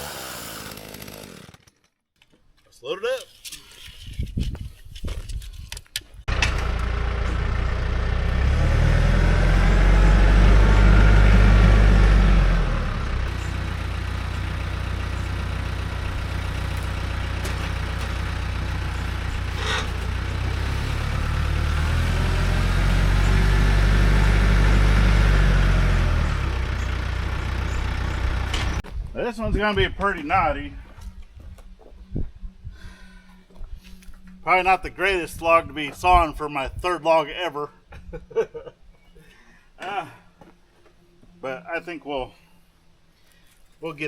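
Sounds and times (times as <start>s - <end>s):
engine running and revving: 6.3s - 28.8s.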